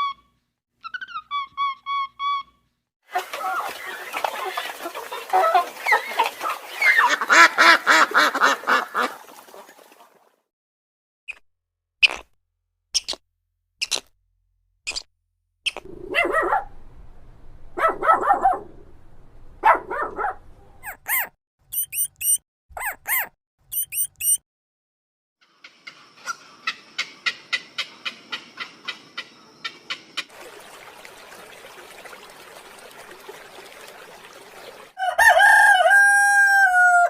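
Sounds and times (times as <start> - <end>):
high chirps: 21.7 - 22.4, 23.7 - 24.4.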